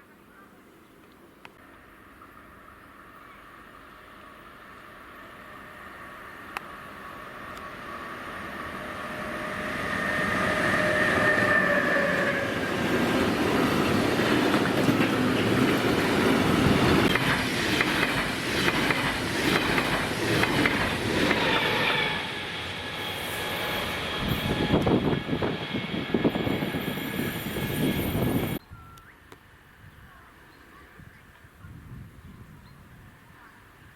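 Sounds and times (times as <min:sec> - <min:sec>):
train passing: 0:01.6 - 0:28.6.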